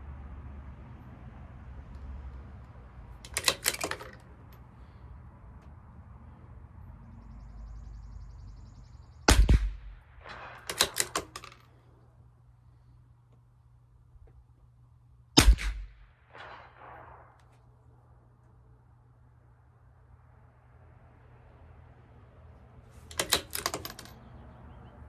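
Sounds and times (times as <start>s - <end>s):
rifle bolt clicking: 3.2s - 4.3s, 10.3s - 11.7s, 23.1s - 24.1s
rifle shot: 9.3s - 11.6s, 15.4s - 17.8s.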